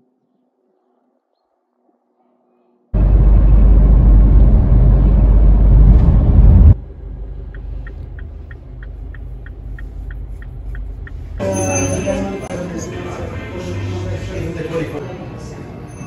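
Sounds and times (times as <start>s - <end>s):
idling cabin hum: 3.0s - 11.4s
car driving rumble: 3.0s - 11.5s
steady quick ticking: 7.2s - 11.4s
voices: 7.5s - 16.0s.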